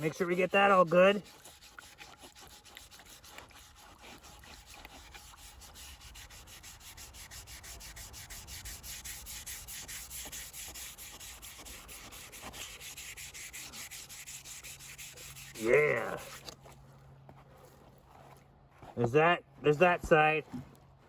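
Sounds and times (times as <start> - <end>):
abrasive pad scrubbing steel: 0.0 - 16.5.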